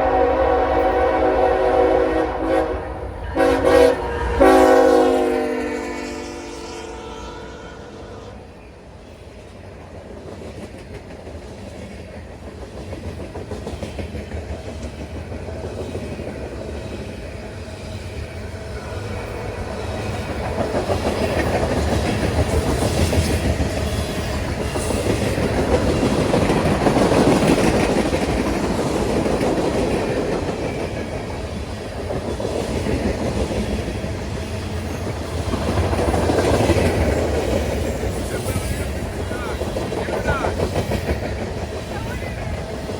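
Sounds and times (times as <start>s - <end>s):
locomotive horn: 0.0s - 8.6s
freight train cars rumbling: 0.0s - 42.9s.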